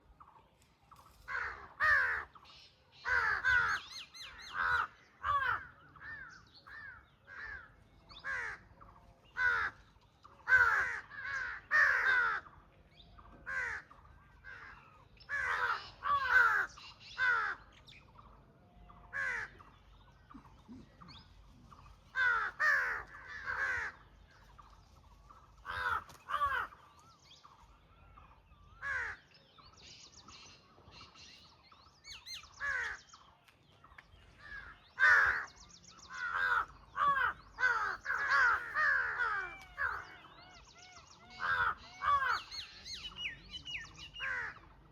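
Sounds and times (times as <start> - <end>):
faint bird calls: 0.0 - 44.9
crows cawing: 1.2 - 2.4, 3.0 - 8.8, 9.4 - 12.6, 13.2 - 17.8, 19.0 - 19.8, 21.8 - 24.6, 25.4 - 27.0, 28.8 - 29.3, 32.4 - 33.1, 34.4 - 43.0, 44.1 - 44.8.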